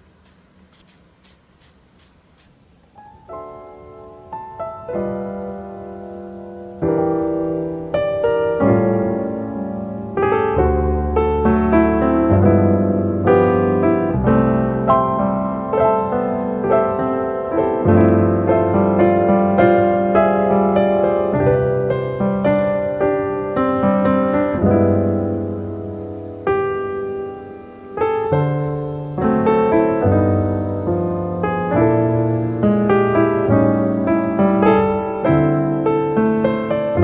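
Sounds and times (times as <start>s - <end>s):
solo piano piece: 0.0s - 37.0s.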